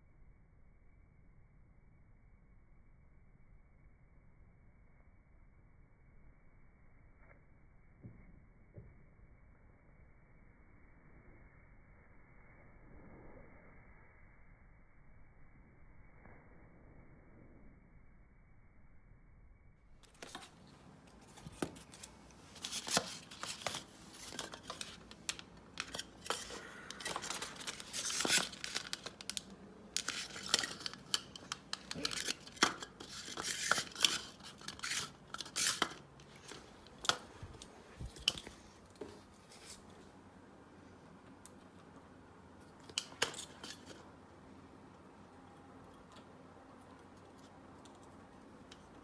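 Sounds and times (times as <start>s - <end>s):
handling clicks and scrapes: 20.0s - 39.9s, 42.8s - 44.1s.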